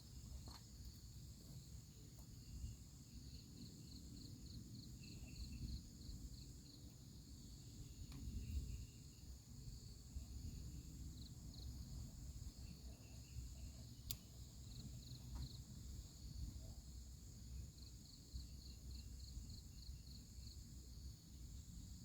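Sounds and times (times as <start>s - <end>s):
crickets chirping: 0.0s - 22.0s
sharp click: 14.0s - 14.3s.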